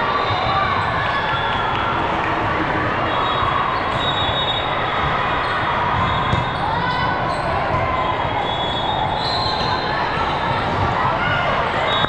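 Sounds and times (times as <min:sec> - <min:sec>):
faint voices: 0:00.0 - 0:12.0
volleyballs hit and bouncing: 0:05.0 - 0:08.0.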